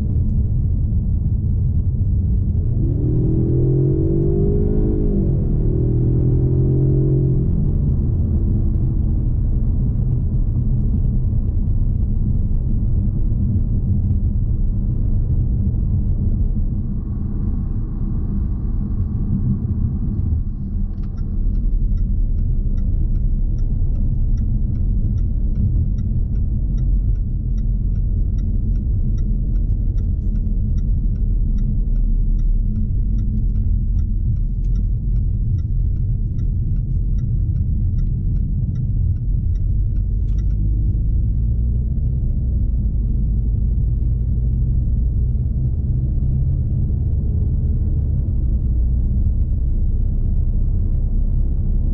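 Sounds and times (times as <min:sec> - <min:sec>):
road and engine rumble in car: 0:00.0 - 0:51.9
turn signal ticking: 0:00.1 - 0:51.9.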